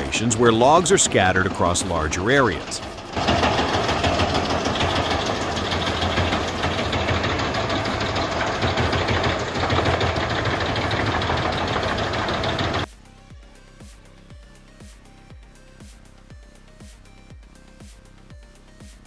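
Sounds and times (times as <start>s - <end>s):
large machine engine running: 0.0s - 12.9s.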